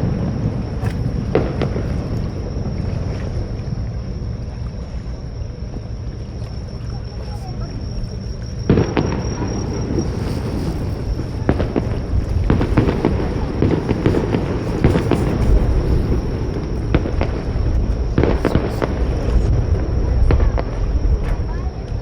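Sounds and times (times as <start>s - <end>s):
fireworks booming: 0.0s - 3.1s, 7.7s - 21.7s
fireworks crackling: 8.7s - 20.8s.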